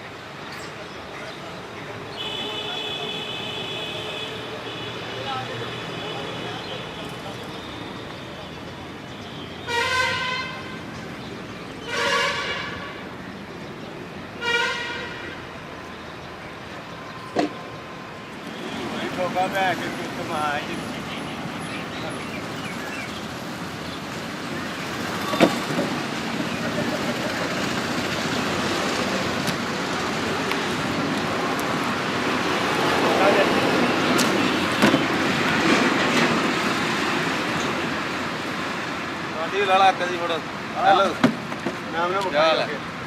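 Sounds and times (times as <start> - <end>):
traffic noise: 0.0 - 43.0
vehicle horn honking: 2.2 - 5.0, 9.6 - 10.8, 11.8 - 13.0, 14.4 - 15.4.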